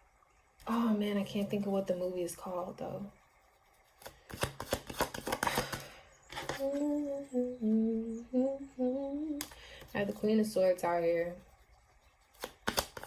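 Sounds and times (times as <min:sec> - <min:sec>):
woman humming: 0:06.6 - 0:09.5.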